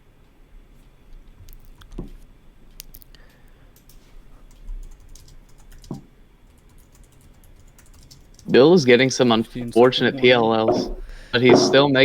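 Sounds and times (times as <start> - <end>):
soft thumps: 9.6 - 11.9.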